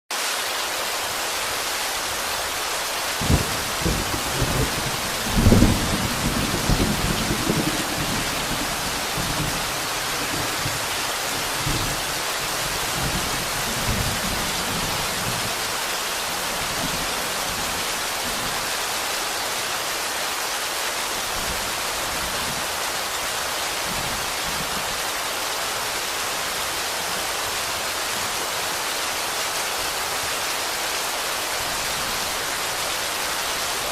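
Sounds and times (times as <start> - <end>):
rain hiss: 0.1 - 33.9
crackling thunder clap: 3.2 - 10.8.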